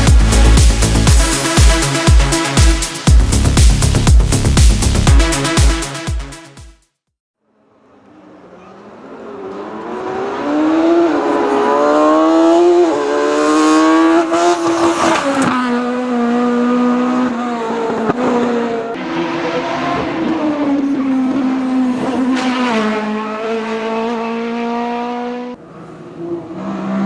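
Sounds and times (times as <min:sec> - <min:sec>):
race car accelerating: 0:07.7 - 0:27.0.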